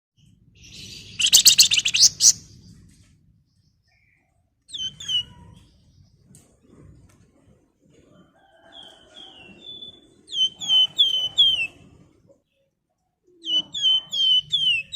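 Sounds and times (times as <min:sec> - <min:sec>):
sharp down-slurred whistles: 0:01.2 - 0:02.4
songbird rattling trill: 0:01.2 - 0:02.4.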